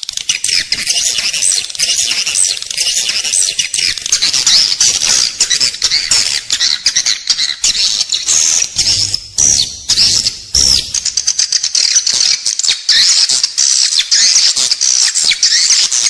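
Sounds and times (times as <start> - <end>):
swiftlets twittering: 0.0 - 12.1.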